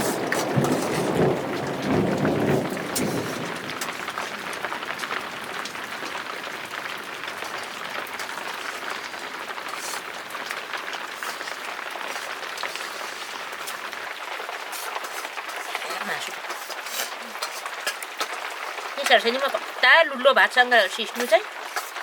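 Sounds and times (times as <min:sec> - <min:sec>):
steady rain: 0:00.0 - 0:22.0.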